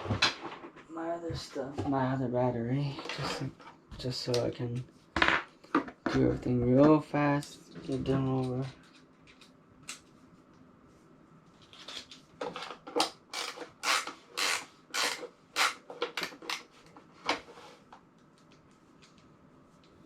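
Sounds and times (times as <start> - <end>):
scraping and rubbing of gear: 11.6 - 17.9.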